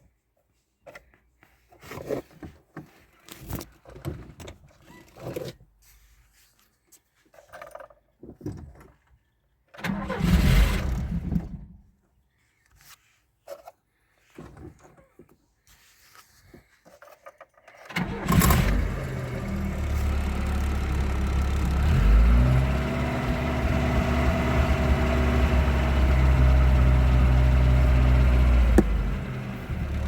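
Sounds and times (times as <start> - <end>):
car engine cranking on starter: 9.8 - 11.7, 17.9 - 30.0.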